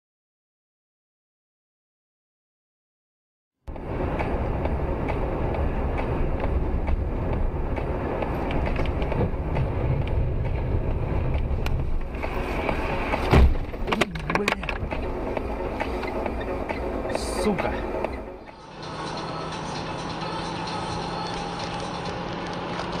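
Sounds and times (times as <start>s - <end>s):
car engine and tyre noise: 3.7s - 23.0s
loud sudden thump: 13.2s - 13.8s.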